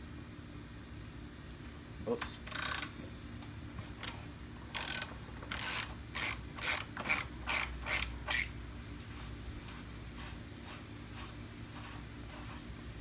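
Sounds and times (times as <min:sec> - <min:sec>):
ratchet wrench clicking: 0:02.2 - 0:03.0, 0:04.0 - 0:08.6.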